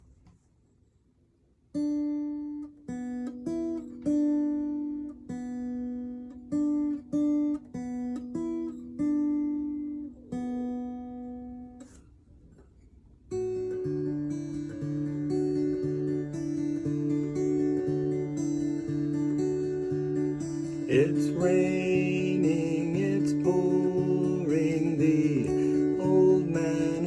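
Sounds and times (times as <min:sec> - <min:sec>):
acoustic guitar plucked melody: 0:01.7 - 0:27.0
guitar chords with bass line: 0:13.5 - 0:27.0.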